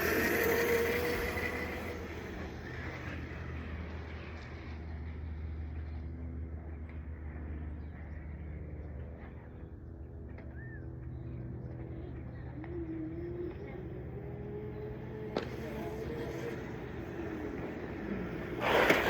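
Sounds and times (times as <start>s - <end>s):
toy motorbike motor hum: 0.0s - 4.0s, 12.4s - 19.0s
wavering whine: 0.0s - 19.0s.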